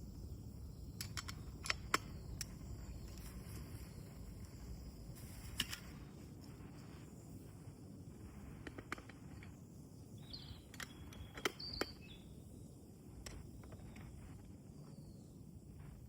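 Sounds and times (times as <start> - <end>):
sharp clicks: 1.0 - 3.2.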